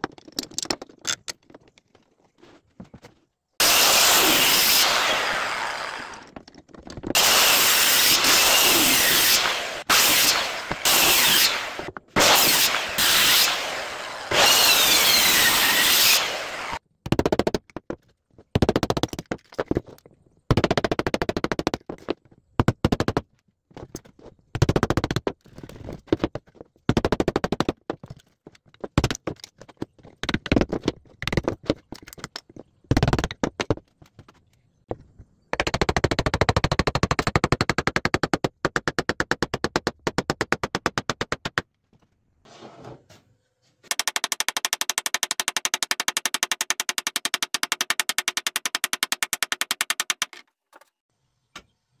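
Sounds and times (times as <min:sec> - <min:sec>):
woodworking tool on wood: 0:03.6 - 0:16.8.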